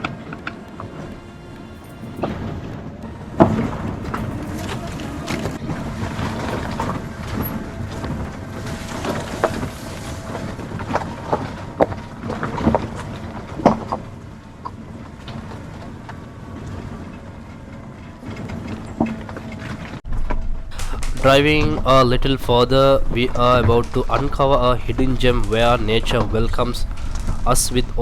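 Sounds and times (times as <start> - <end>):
knocks and rattles: 0.0 - 14.0
vehicle engine and tyres rumbling: 0.0 - 28.0.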